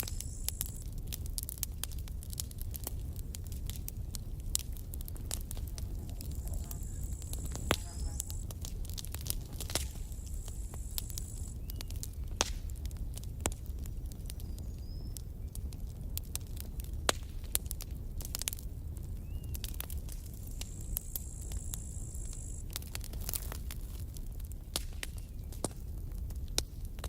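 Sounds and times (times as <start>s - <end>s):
thin high hiss: 0.0s - 0.8s, 6.3s - 8.5s, 9.6s - 11.6s, 20.6s - 22.6s
steady low rumble: 0.0s - 14.1s
campfire crackling and popping: 0.0s - 27.0s.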